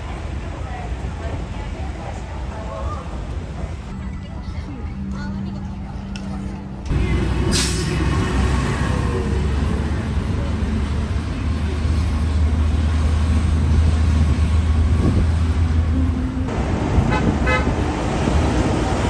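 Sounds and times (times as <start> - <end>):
vehicle engine running: 6.9 - 19.0.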